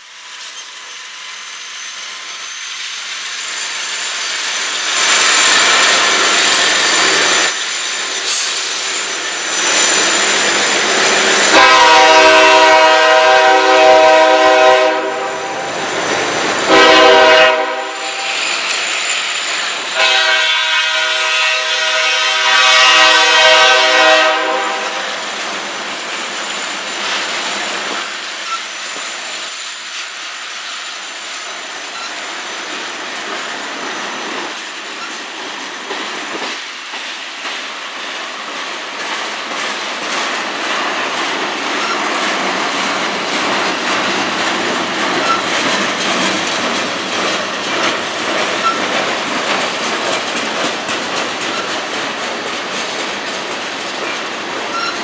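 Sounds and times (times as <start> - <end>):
freight train wheels rumbling: 0.0 - 55.0
locomotive horn: 11.4 - 15.9, 16.6 - 18.4, 20.0 - 25.2.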